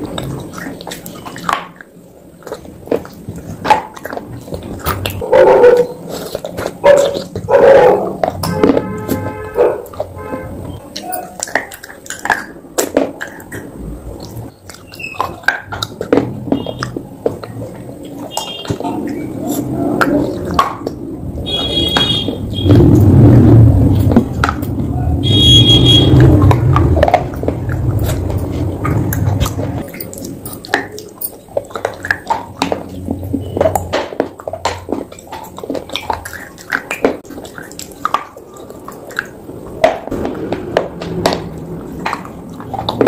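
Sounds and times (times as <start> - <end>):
sharp little crunches and clicks: 0.0 - 23.2, 23.8 - 43.0
mushy chewing: 0.0 - 43.0.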